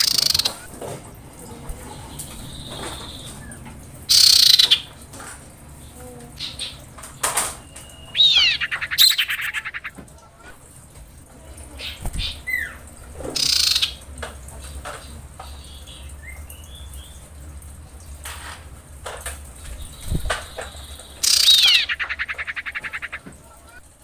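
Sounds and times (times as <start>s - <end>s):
bird call with rattling trill: 0.0s - 0.6s, 2.0s - 4.9s, 6.4s - 9.9s, 13.4s - 14.0s, 19.7s - 23.2s
soft bird whistles: 7.6s - 9.4s.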